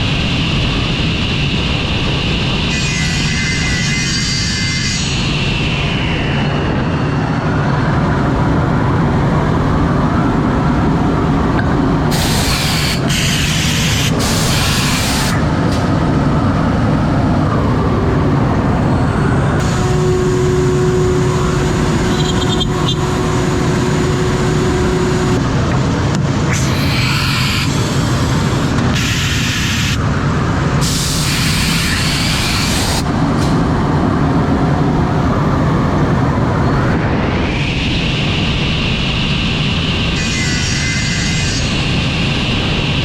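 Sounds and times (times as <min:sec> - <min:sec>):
steady tone: 0:05.2 - 0:30.8
router milling wood: 0:26.5 - 0:29.7, 0:31.2 - 0:33.0.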